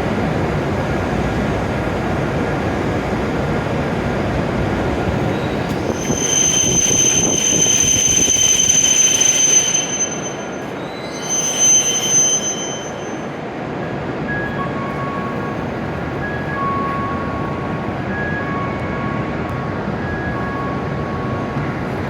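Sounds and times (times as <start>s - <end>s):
train rumble: 0.0s - 22.0s
train wheels and brakes squealing: 5.2s - 19.4s.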